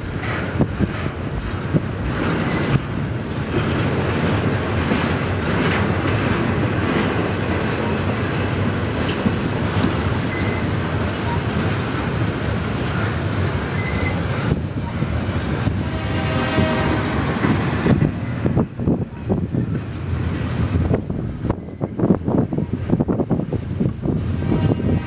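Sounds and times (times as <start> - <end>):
freight train wheels rumbling: 0.0 - 25.0
wheels clicking over rail joints: 0.0 - 25.0
high wheel squeals: 10.2 - 11.6, 13.0 - 15.1.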